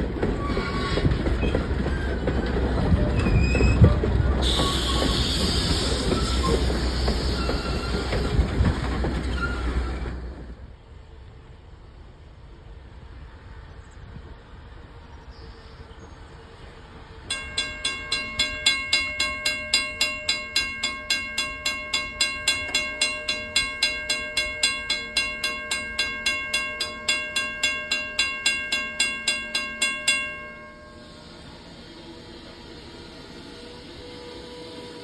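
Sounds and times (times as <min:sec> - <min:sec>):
railroad bell ringing: 0:03.8 - 0:08.4, 0:17.3 - 0:32.2.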